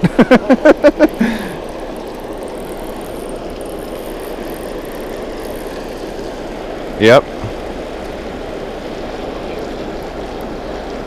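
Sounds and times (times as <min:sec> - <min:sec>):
water rushing through spillway: 0:00.0 - 0:11.0.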